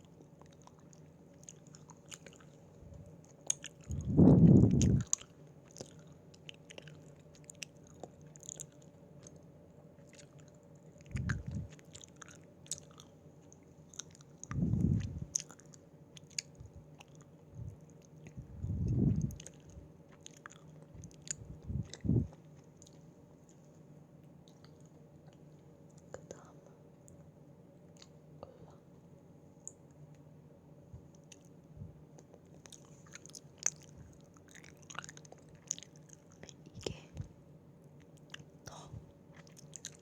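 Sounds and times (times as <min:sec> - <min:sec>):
wet mouth clicks chewing: 0:00.0 - 0:09.4, 0:10.0 - 0:23.6, 0:32.2 - 0:37.3, 0:38.0 - 0:40.0
louder low chews: 0:00.0 - 0:23.7, 0:31.0 - 0:40.0.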